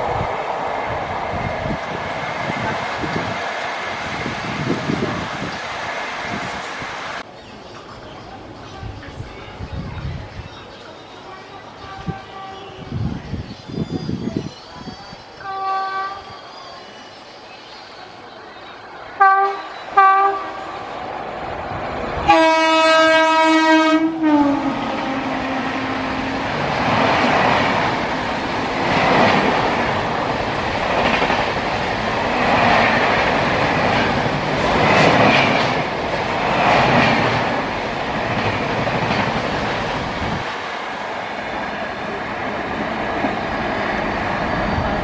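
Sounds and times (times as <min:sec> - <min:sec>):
train coaches rushing and clattering: 0:00.0 - 0:45.0
locomotive horn: 0:15.4 - 0:16.2, 0:19.2 - 0:20.8, 0:22.2 - 0:26.4.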